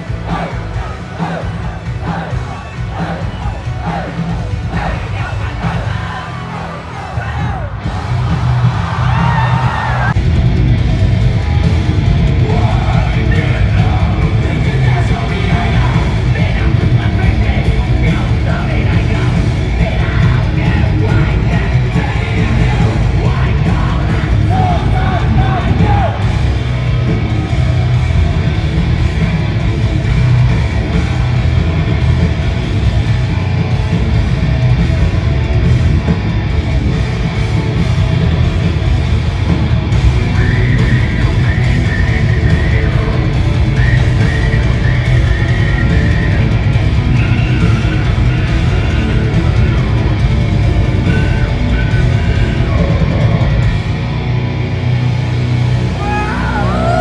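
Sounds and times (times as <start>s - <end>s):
yelled vocals: 0.0s - 54.7s, 55.7s - 57.0s
distorted guitar: 0.0s - 57.0s
heavy rock band playing: 0.0s - 57.0s.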